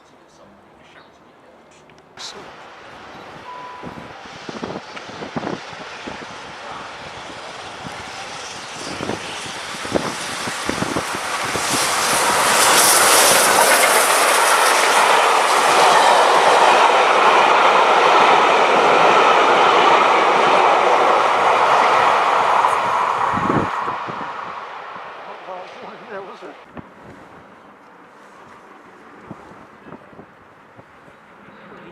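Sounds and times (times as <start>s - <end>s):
train passing on rails: 2.0s - 31.9s
train wheels knocking: 9.0s - 23.4s.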